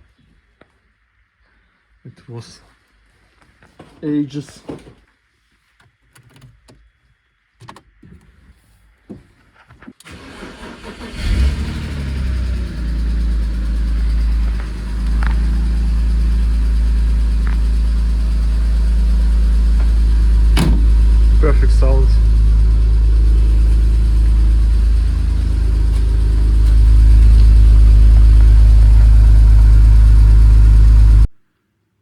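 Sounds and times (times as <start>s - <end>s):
car engine cranking and idling: 10.0s - 31.3s.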